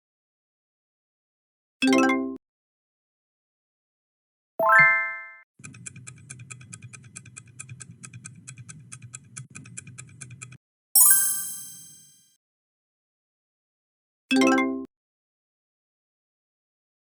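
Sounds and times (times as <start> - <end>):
bright bell ding: 11.0 - 12.2.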